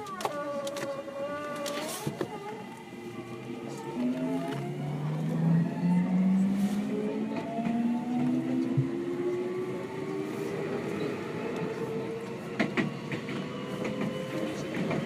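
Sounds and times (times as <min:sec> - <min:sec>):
train running noise: 0:00.0 - 0:15.0.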